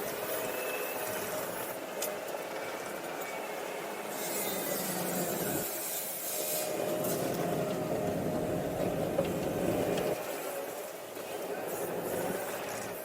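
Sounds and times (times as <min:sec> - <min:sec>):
diesel engine running: 0:07.4 - 0:10.2.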